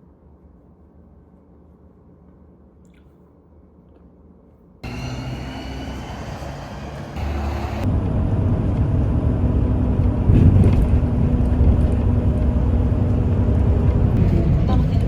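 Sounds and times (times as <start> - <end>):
vehicle engine and road rumble: 4.8 - 15.0.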